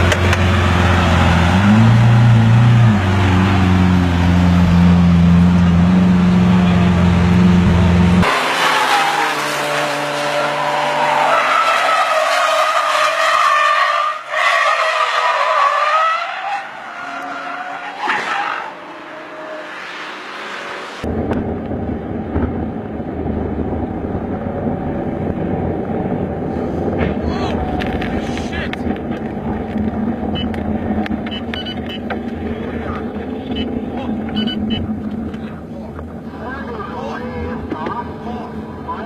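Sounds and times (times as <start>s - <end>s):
car engine humming: 0.0s - 14.3s, 18.6s - 39.0s
tyres squealing in a skid: 8.6s - 9.4s, 10.4s - 19.6s.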